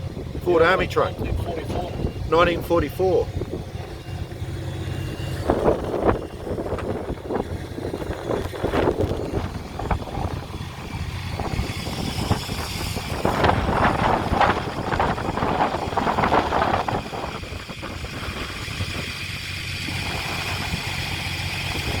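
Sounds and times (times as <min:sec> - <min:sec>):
engine rumble: 0:00.0 - 0:22.0.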